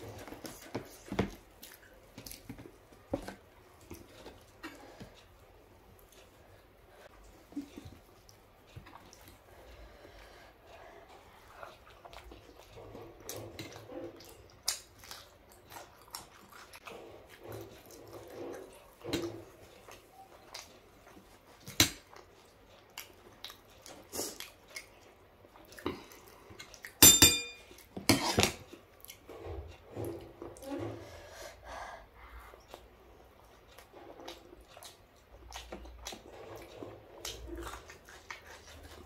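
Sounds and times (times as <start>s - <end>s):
chewing and wet mouth clicks: 19.8s - 27.0s, 32.6s - 39.0s
spoon clattering on metal bowl: 27.0s - 28.2s.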